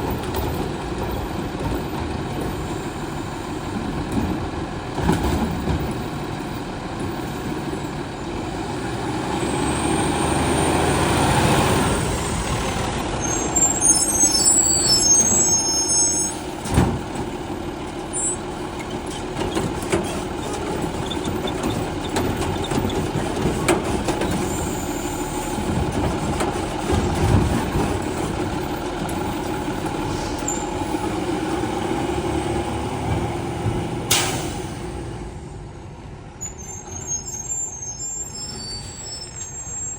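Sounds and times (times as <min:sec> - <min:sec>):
garbage truck engine and hydraulics: 0:00.0 - 0:39.9
air brake hisses: 0:30.0 - 0:30.6, 0:34.1 - 0:34.8.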